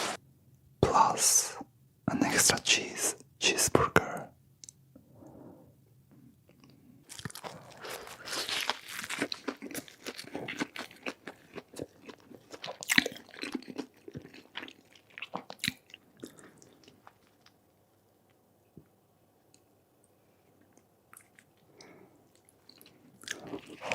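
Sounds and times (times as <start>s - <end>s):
wet chewing: 6.5s - 17.6s, 20.6s - 23.9s
crunchy burger bites: 6.6s - 17.7s.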